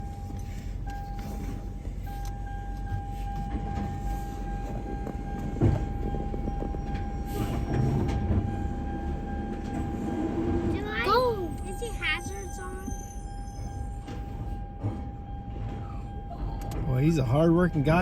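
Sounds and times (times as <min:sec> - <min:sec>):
garbage truck diesel engine: 0:00.0 - 0:18.0.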